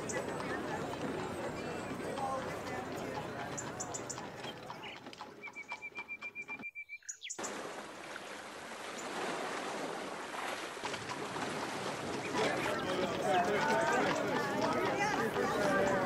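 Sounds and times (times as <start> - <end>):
outdoor background noise: 0.0 - 16.0
bird chirping trill: 3.6 - 7.4.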